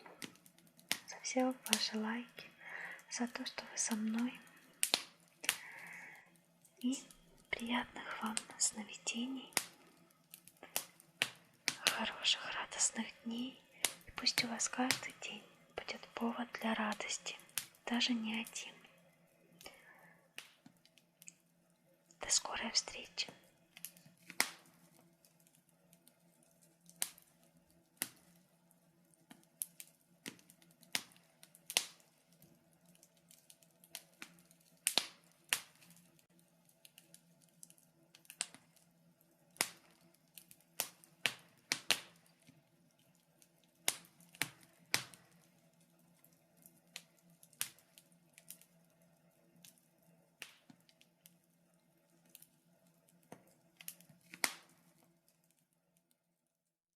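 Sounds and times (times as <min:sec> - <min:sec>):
faint steady hum: 0:00.0 - 0:55.8
logs crackling in a fireplace: 0:00.0 - 0:56.4.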